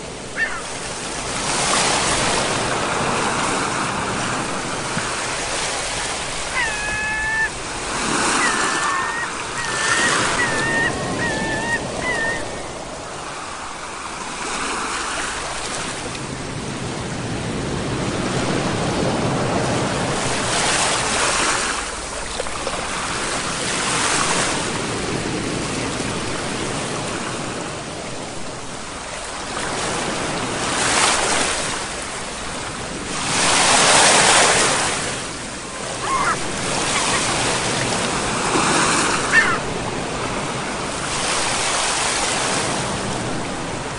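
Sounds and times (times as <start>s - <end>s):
ocean waves breaking on shore: 0.0s - 43.9s
short high-pitched calls: 8.4s - 12.6s.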